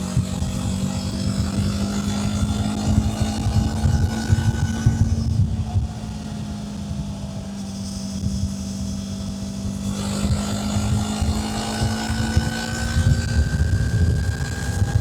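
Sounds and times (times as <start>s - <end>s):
motorcycle engine accelerating: 0.0s - 15.0s
wind rumble on microphone: 0.0s - 15.0s.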